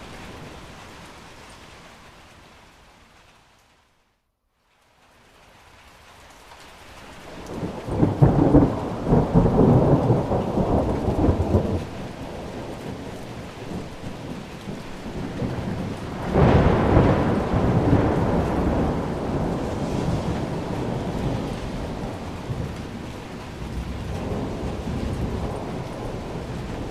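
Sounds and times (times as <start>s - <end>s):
steady rain: 0.0s - 26.9s
thunder rumbling: 7.3s - 26.9s.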